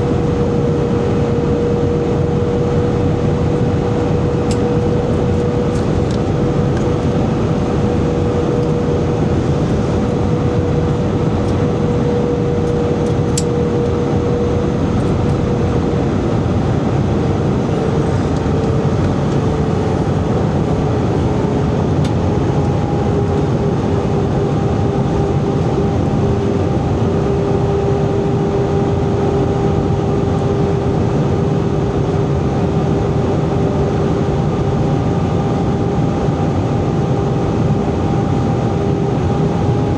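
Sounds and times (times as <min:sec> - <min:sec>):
higher engine tone: 0:00.0 - 0:24.1
engine hum: 0:00.0 - 0:31.5
rush of air in aircraft cabin: 0:00.0 - 0:39.9.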